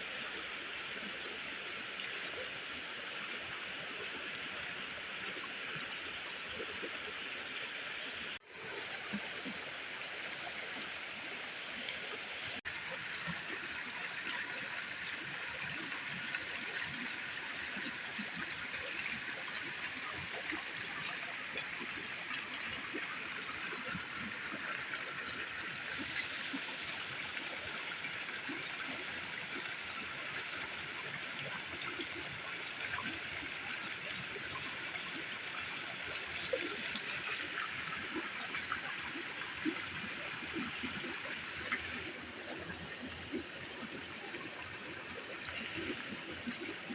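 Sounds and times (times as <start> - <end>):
rush of water: 6.0 - 46.9.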